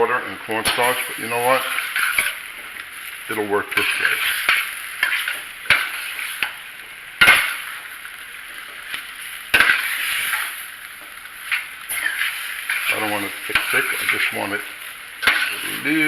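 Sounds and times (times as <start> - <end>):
food sizzling in a hot pan: 0.0 - 16.0.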